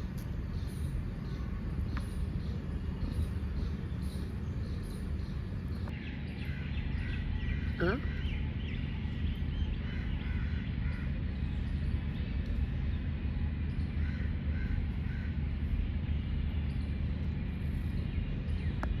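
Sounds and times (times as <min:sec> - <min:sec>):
steady low hum: 0:00.0 - 0:19.0
short bird calls: 0:06.2 - 0:11.2.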